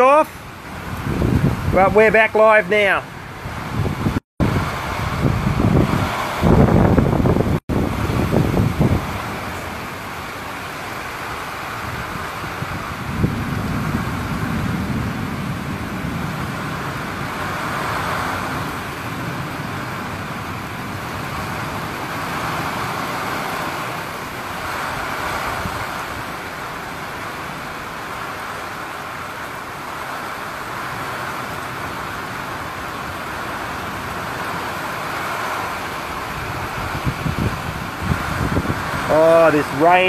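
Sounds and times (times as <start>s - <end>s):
heavy rain pouring: 0.0s - 40.0s
wind gusts rumbling: 0.0s - 40.0s.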